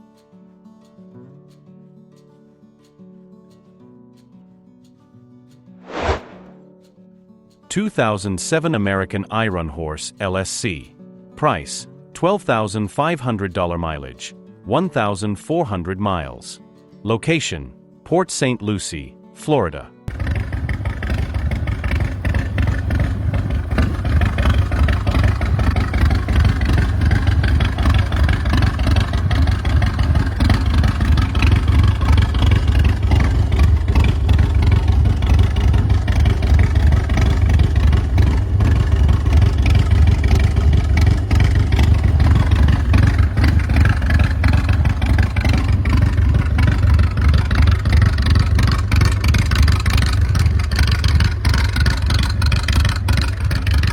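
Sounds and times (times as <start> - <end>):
motorcycle engine running loud: 20.1 - 53.9.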